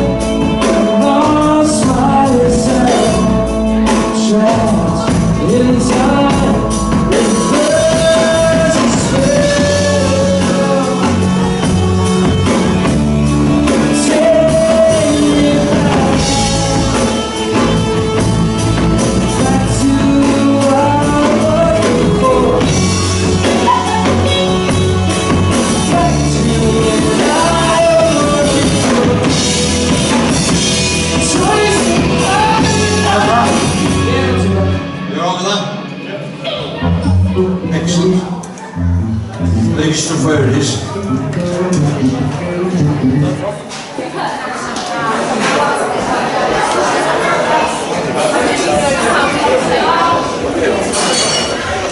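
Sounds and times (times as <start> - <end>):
lead singer singing: 0.0 - 35.2
live rock band playing: 0.0 - 43.8.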